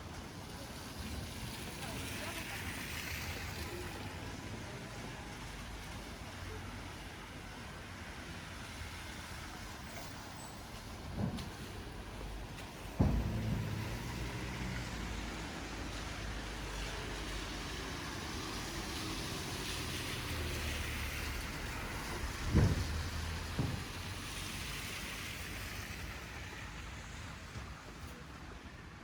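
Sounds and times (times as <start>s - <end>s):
passing traffic hiss: 1.0s - 28.9s.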